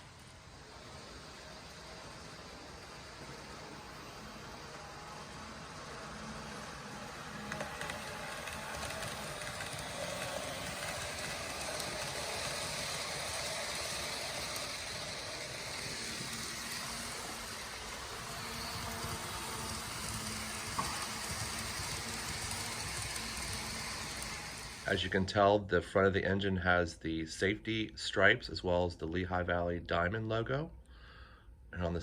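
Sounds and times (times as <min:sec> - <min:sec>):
model train motor whirring: 0:00.0 - 0:25.0.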